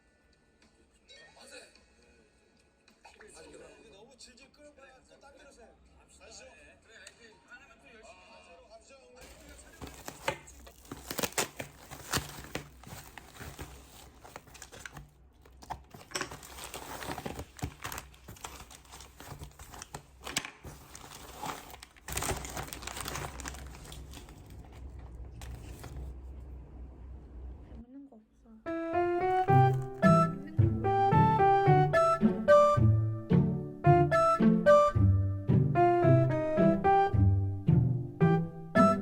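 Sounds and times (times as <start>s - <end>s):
packaging crinkling and rustling: 9.2s - 26.2s
faint low hum: 20.7s - 28.6s.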